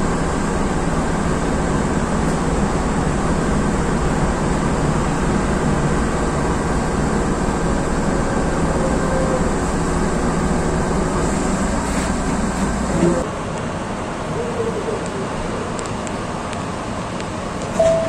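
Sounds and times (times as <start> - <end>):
train motors and wheels on rails: 0.0 - 18.0
faint held tone: 17.8 - 18.0.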